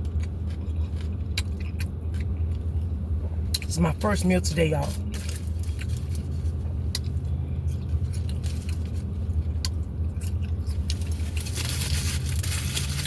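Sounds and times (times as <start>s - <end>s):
chewing with crunches: 0.0s - 3.7s, 4.4s - 13.0s
low hum: 0.0s - 13.0s.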